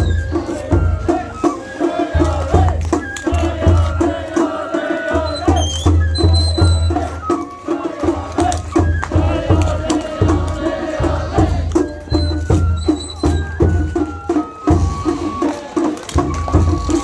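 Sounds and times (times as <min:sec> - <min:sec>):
drums beating: 0:00.0 - 0:17.0
flute melody: 0:00.0 - 0:17.0.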